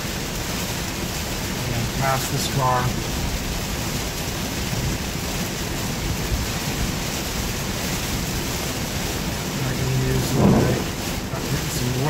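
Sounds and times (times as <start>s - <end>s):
heavy rain on a car: 0.0s - 12.0s
tyres on flooded road: 0.0s - 12.0s.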